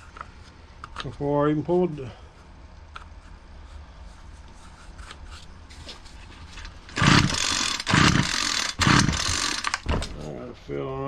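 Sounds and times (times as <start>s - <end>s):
recoil starter pull: 6.9s - 10.2s
string trimmer engine cranking: 6.9s - 10.3s.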